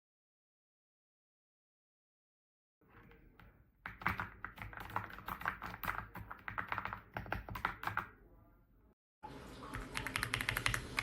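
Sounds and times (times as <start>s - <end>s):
mechanical keyboard typing: 3.4s - 8.1s, 9.7s - 11.0s.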